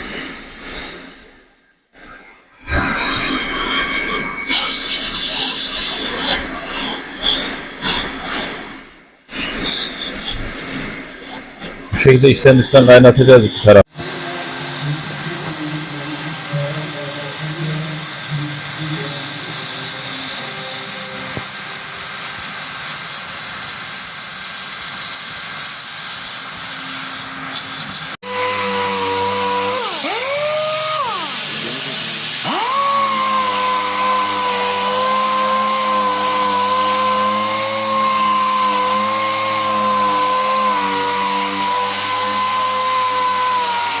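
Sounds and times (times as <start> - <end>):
hot-air plastic welder hissing: 2.7 - 13.8, 14.5 - 41.6
small electric power tool whining: 26.3 - 44.0.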